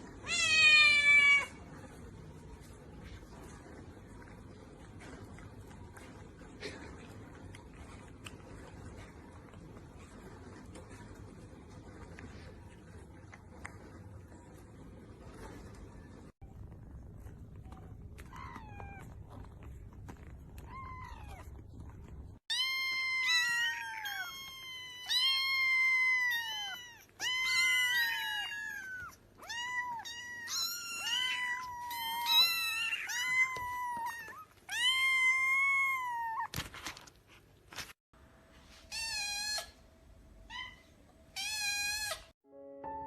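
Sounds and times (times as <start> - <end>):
cat meowing: 0.2 - 1.6, 22.5 - 36.5.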